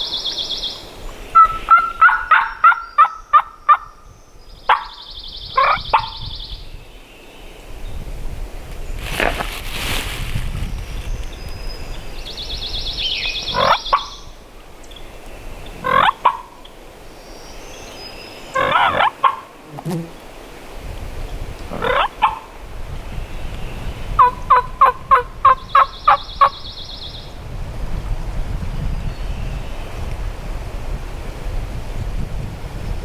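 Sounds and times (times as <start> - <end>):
songbird trilling: 0.0 - 6.9, 10.8 - 19.4
turkey gobbling: 1.4 - 3.9, 13.4 - 14.1, 15.8 - 16.5, 18.6 - 19.5
turkey yelps: 1.4 - 3.9, 15.8 - 16.5, 18.6 - 19.5, 21.7 - 22.5, 24.2 - 26.5
wind rushing: 7.8 - 13.7.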